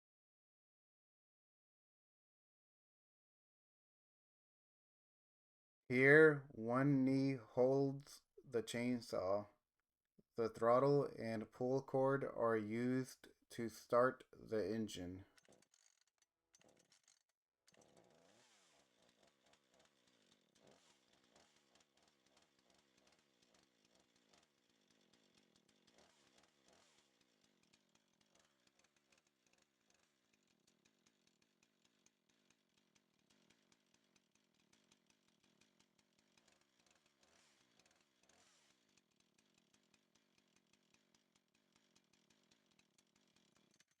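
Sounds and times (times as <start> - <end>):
faint chainsaw engine running: 10.4 - 44.0.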